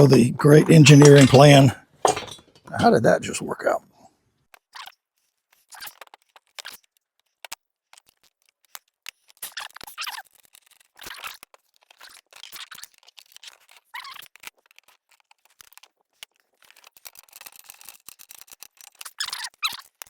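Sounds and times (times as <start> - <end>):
metal hardware rattling: 0.0 - 3.0
metal scraping: 0.0 - 3.2
tools clicking: 0.9 - 2.8.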